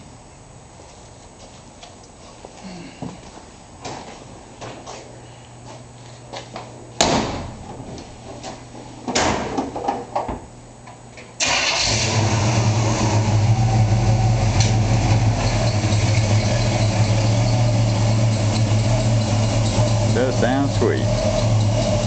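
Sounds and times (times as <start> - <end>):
truck engine idling: 11.8 - 22.0.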